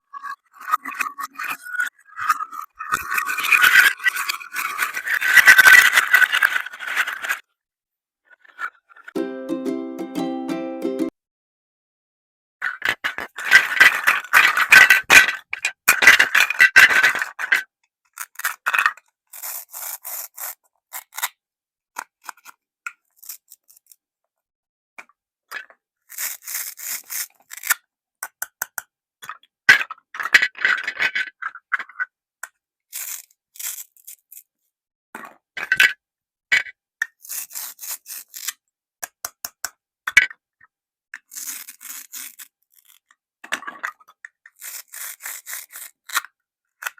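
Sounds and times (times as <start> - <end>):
plastic toys scraping: 0.0 - 7.6, 8.2 - 9.2, 12.6 - 21.2, 25.5 - 27.8, 29.7 - 32.1, 32.9 - 34.6, 41.2 - 46.9.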